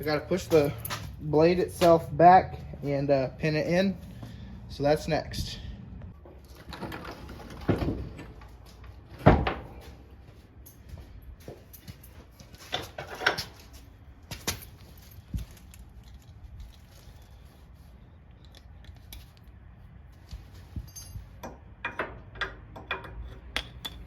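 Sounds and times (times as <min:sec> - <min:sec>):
metal clanks and clinks: 0:00.0 - 0:01.2, 0:20.8 - 0:24.0.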